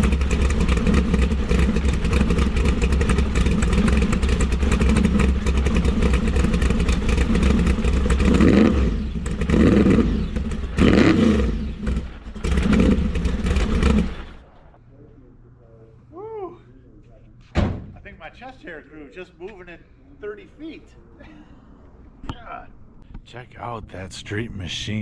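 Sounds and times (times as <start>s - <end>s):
engine revving blips: 0.0s - 14.4s
engine lumpy idle: 0.0s - 14.8s.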